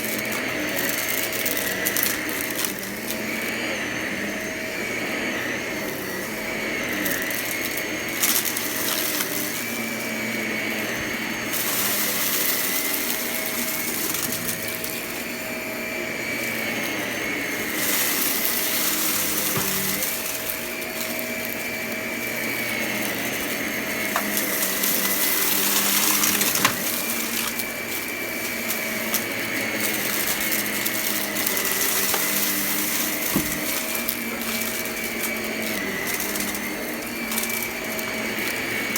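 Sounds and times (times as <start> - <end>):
debris rattling in vacuum: 0.0 - 38.9
vacuum cleaner running: 0.0 - 38.9.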